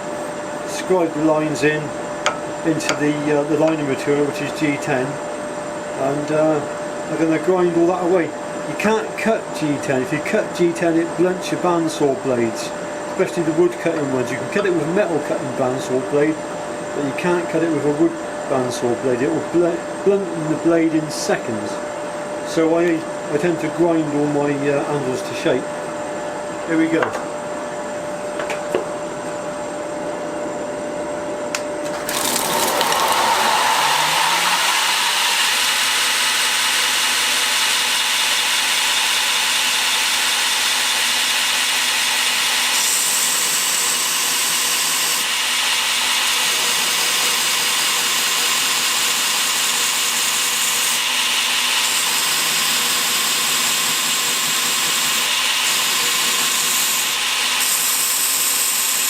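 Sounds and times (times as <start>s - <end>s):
grinder running: 31.8s - 59.0s.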